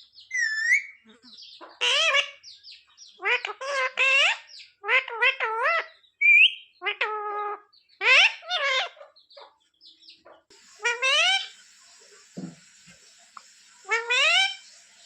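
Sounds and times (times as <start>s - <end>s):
parrot calling: 10.5s - 15.0s
steady hiss: 10.5s - 15.0s.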